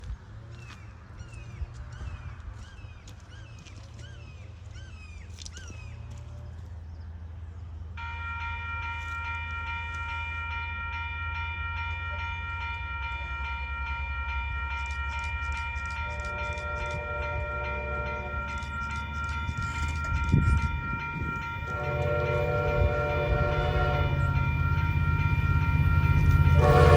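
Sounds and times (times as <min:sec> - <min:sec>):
locomotive rumble: 0:06.2 - 0:26.9
train horn blast: 0:08.0 - 0:26.9
evenly spaced ticks: 0:11.8 - 0:23.4.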